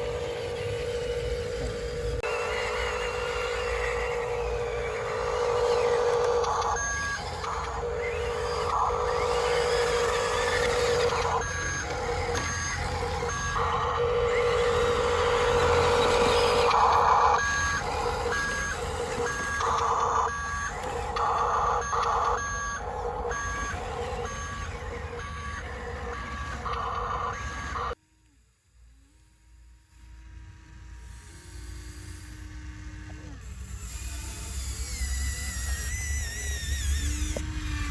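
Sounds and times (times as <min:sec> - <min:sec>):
reversing beeper: 0:00.0 - 0:28.0
simulated truck engine hum: 0:00.0 - 0:28.0, 0:28.6 - 0:37.9.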